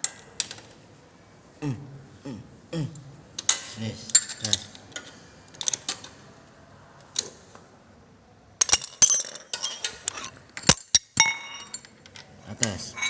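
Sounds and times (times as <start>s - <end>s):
metal tools clinking and knocking: 3.5s - 6.0s, 8.6s - 13.0s.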